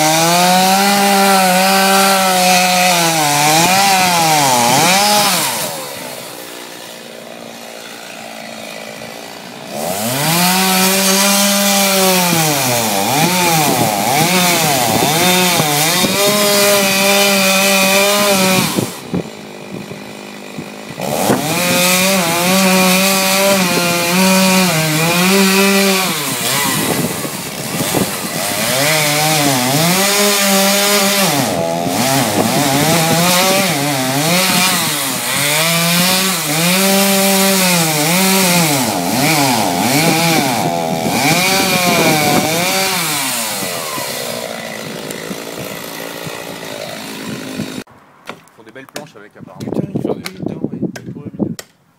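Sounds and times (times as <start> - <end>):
chainsaw cutting wood: 0.0 - 51.8.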